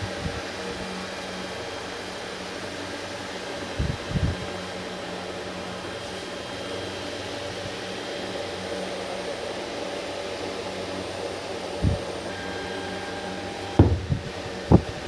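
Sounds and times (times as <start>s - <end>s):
electric motor whirring hum: 10.7s - 15.0s
handling thumps: 13.8s - 14.9s.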